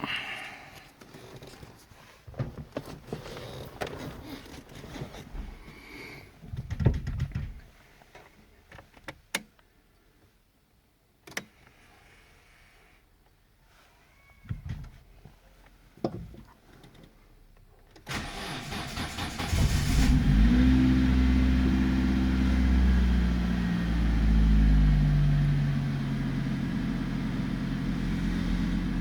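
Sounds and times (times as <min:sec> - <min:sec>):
clicks knocks and rustling: 0:06.4 - 0:07.7.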